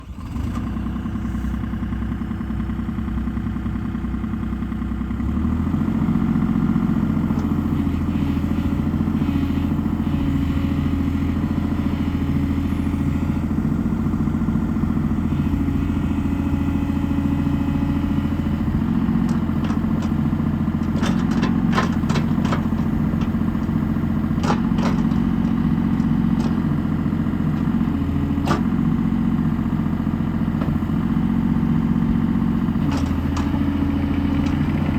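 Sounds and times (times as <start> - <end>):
excavator diesel engine running: 0.0 - 34.9
sharp knocks and clanks: 19.2 - 23.8, 24.4 - 26.8, 28.4 - 28.8.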